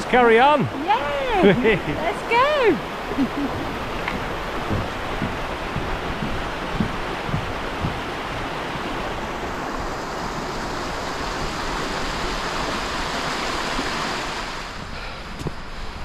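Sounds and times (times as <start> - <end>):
stream rushing and babbling: 0.0 - 16.0
soft thumps: 3.1 - 8.5.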